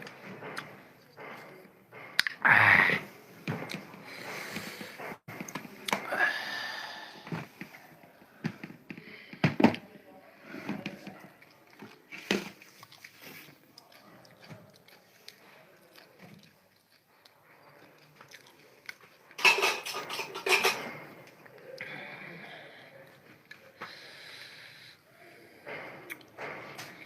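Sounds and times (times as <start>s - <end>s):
mouth clicks and smacks: 2.2s - 2.4s
person chewing food: 3.3s - 6.1s, 11.1s - 19.4s, 25.7s - 27.0s.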